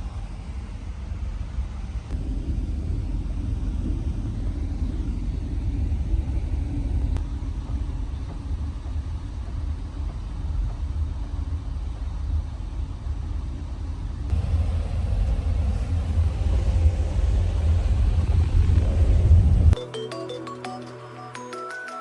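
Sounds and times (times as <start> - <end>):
train rumbling: 0.0 - 19.8.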